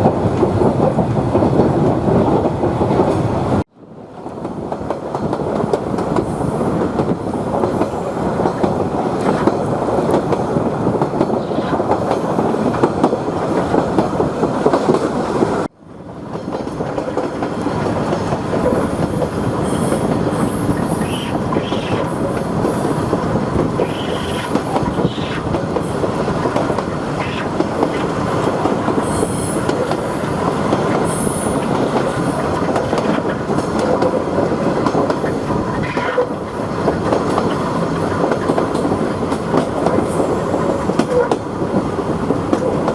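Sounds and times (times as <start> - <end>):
railcar rumbling: 0.0 - 42.9
wheels clacking over rail joints: 16.3 - 42.9.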